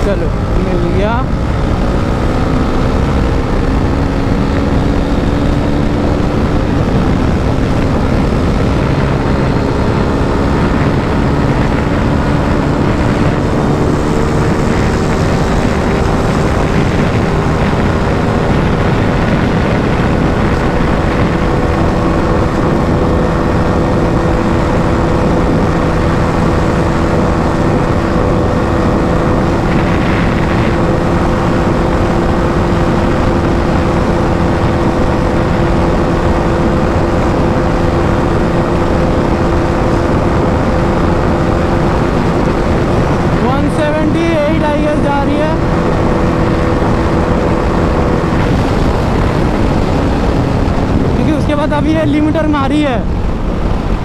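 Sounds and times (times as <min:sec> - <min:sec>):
motorcycle engine at full throttle: 0:00.0 - 0:54.0
rushing wind noise: 0:00.0 - 0:54.0.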